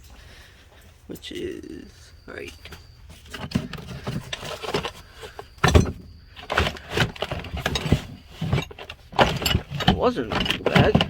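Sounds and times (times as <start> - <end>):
tools clinking together: 2.4 - 11.0.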